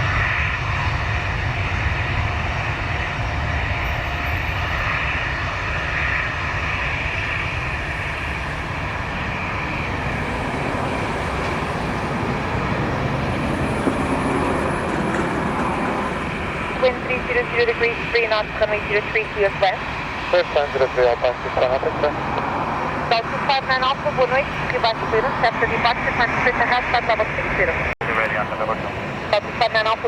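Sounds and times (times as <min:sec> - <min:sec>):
jet engines rumbling: 0:00.0 - 0:30.0.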